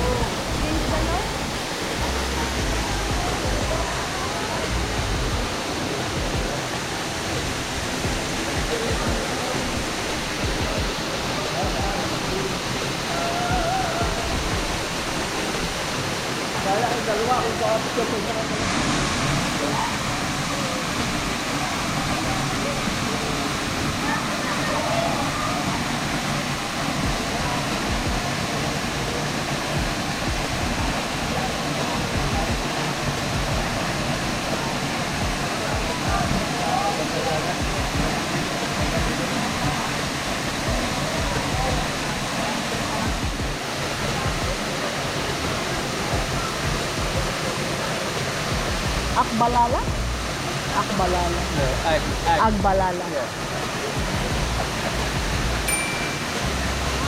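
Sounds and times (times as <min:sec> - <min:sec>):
low thumps: 0:00.0 - 0:04.0
waterfall roaring: 0:00.0 - 0:57.0.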